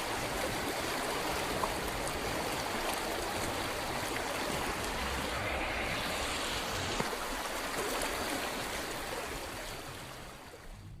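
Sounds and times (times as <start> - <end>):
river water rushing: 0.0 - 10.8.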